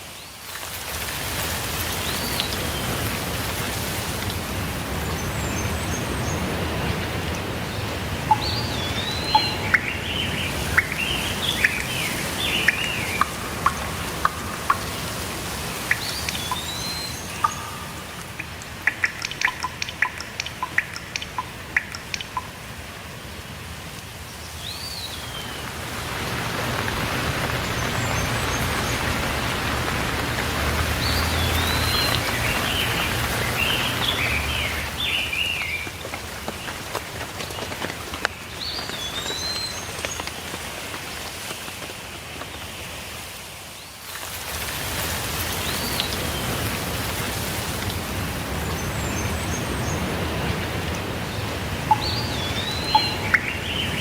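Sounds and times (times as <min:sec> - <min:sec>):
steady rainfall: 0:00.0 - 0:54.0
bird chirps: 0:07.8 - 0:22.6, 0:31.0 - 0:36.0, 0:51.3 - 0:54.0.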